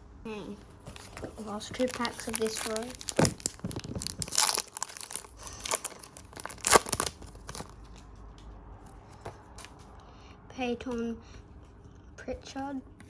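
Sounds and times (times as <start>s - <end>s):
plastic wrapper tearing and crinkling: 0.8s - 8.0s.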